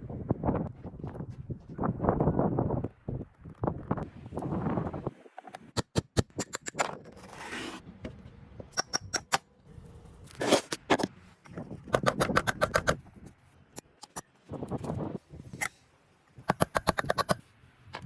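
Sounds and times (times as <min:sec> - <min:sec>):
tools clicking and tapping on metal: 0:08.6 - 0:09.5, 0:16.4 - 0:18.0.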